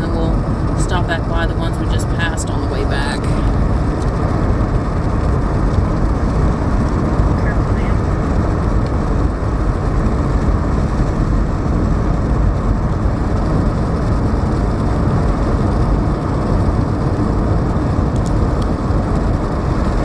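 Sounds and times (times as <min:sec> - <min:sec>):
car interior road noise: 0:00.0 - 0:20.0.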